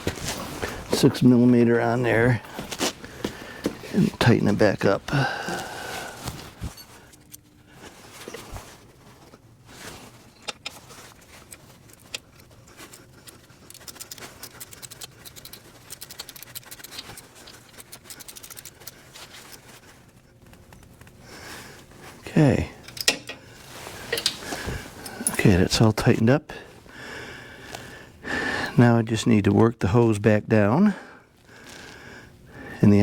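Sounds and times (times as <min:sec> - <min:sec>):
hand tool clicking and scraping: 0:10.3 - 0:19.8, 0:24.0 - 0:25.4
fast ratchet clicks: 0:13.2 - 0:19.0.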